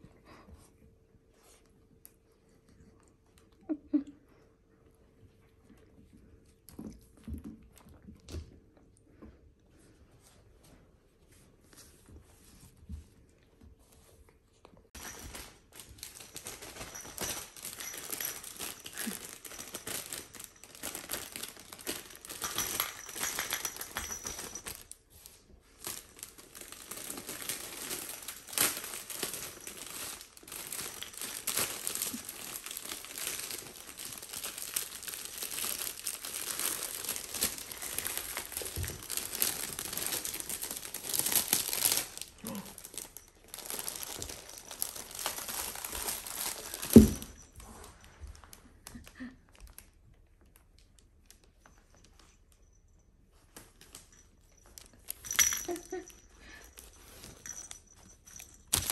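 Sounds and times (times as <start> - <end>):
packaging crinkling and rustling: 15.0 - 51.6, 53.6 - 58.9.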